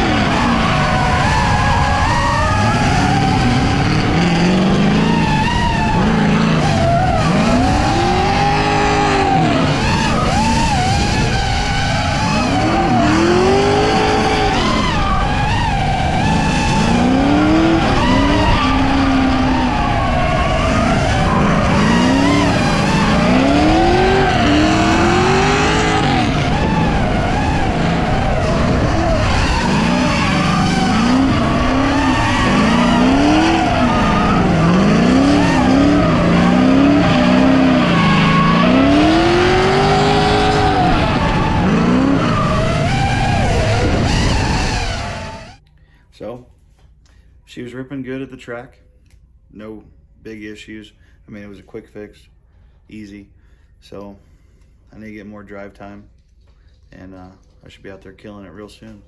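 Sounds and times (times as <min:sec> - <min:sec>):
car engine revving: 0:00.0 - 0:45.6
tyres squealing and skidding: 0:00.0 - 0:45.6.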